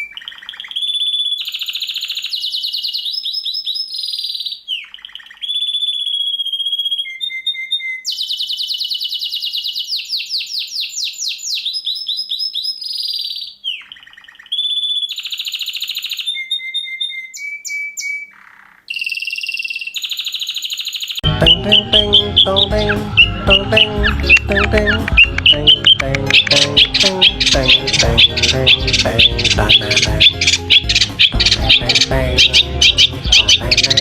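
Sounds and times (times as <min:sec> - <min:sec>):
songbird whistles and trills: 0:00.0 - 0:34.0
music with bass line: 0:21.2 - 0:34.0.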